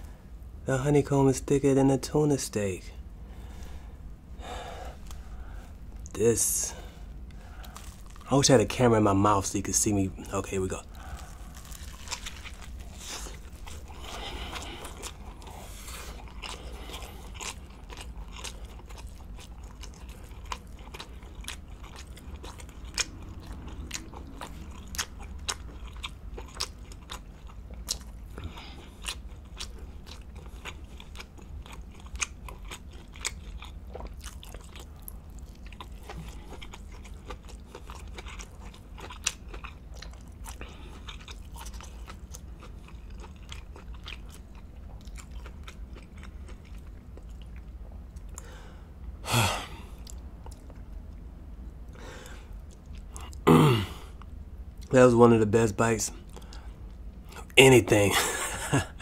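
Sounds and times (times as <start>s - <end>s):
chewing with mouth clicks: 7.2s - 8.6s, 10.2s - 48.5s, 50.0s - 51.3s, 56.2s - 57.6s
biting into a sandwich: 10.8s - 48.5s.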